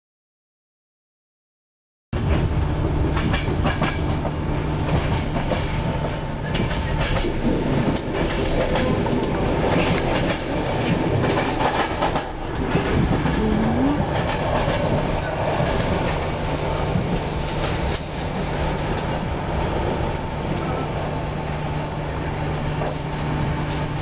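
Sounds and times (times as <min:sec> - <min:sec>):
train rumbling on track: 0:02.2 - 0:24.0
wheels clicking over rail joints: 0:03.1 - 0:16.4.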